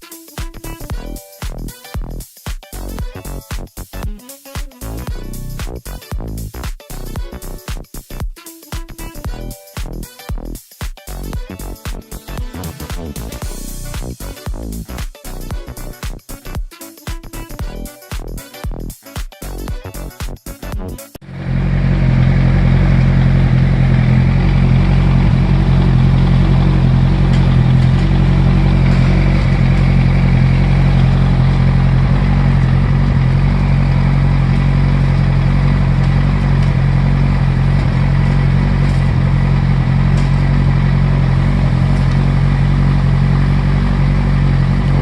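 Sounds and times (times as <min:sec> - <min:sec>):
motorcycle engine idling: 0:21.2 - 0:45.0.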